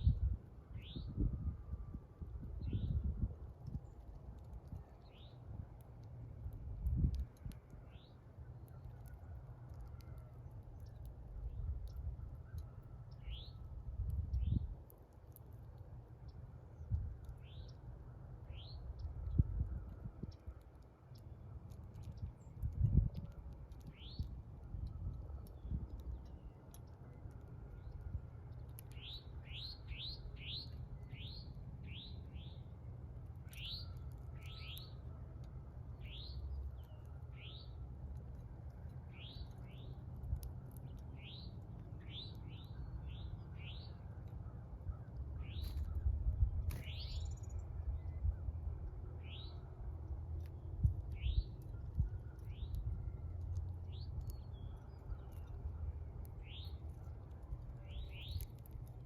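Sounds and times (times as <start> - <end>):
small bird chirping: 4.8 - 5.4, 11.8 - 14.7, 16.2 - 17.8, 22.0 - 24.3, 28.7 - 32.7, 33.4 - 35.0, 36.0 - 37.8, 39.1 - 40.0, 40.8 - 44.0, 45.4 - 46.1, 46.7 - 48.2, 49.2 - 49.6, 51.1 - 53.0, 53.9 - 56.8, 57.8 - 58.7.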